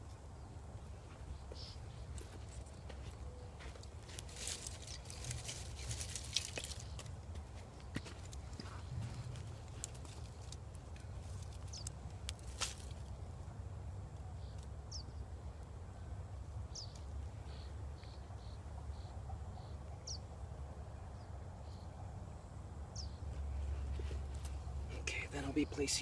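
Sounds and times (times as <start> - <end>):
low wind rumble: 0.0 - 19.1
bird chirping: 0.4 - 7.1, 10.3 - 12.0, 14.2 - 15.5, 16.6 - 22.0, 22.9 - 26.0.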